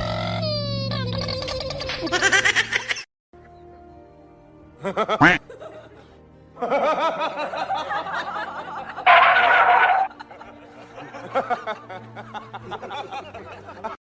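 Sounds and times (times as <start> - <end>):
people laughing: 1.4 - 3.0, 4.8 - 14.0
faint background music: 3.4 - 14.0.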